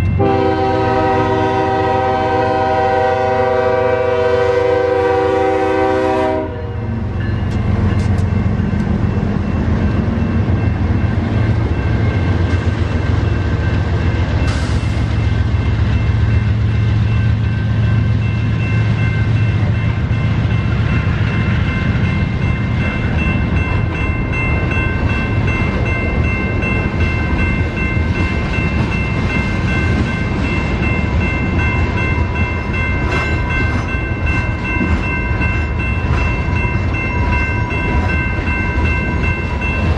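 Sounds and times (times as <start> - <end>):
train cars rumbling and clattering: 0.0 - 39.9
locomotive horn: 0.1 - 7.0.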